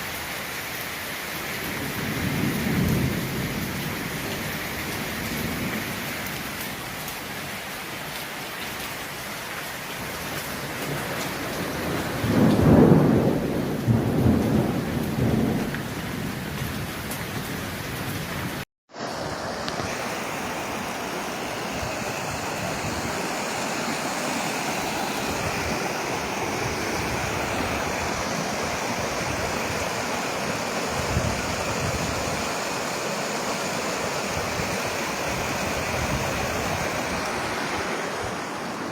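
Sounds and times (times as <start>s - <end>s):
heavy rain: 0.0s - 38.9s
thunder rumbling: 11.5s - 17.0s, 25.1s - 38.9s.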